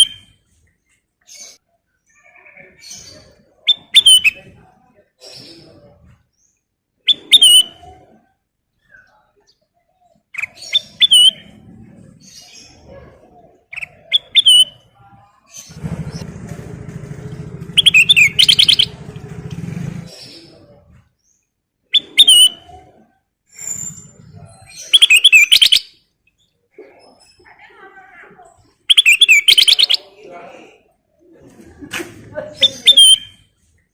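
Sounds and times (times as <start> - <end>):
bird singing whistled phrases: 10.7 - 11.5, 14.1 - 14.8, 21.9 - 22.6, 24.8 - 25.9, 28.9 - 30.1, 32.8 - 33.4.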